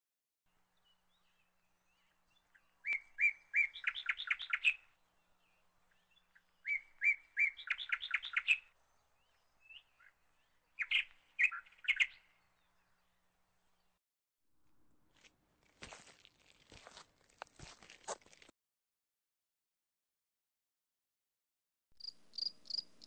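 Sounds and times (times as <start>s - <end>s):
bird singing: 0.6s - 14.0s, 22.0s - 23.0s.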